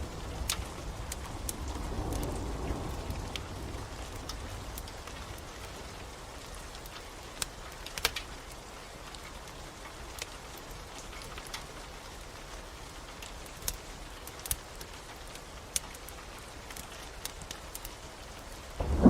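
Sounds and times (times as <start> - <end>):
steady rain: 0.0 - 19.0
wood fire crackling and popping: 0.0 - 19.0.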